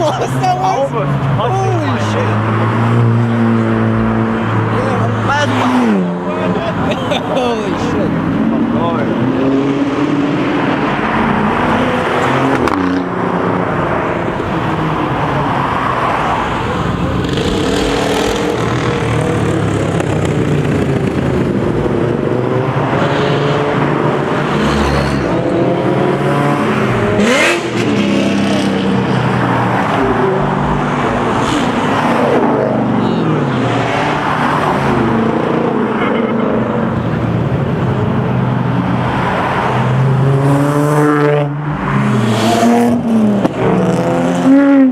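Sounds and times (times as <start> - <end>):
car engines revving and accelerating: 0.0 - 44.9.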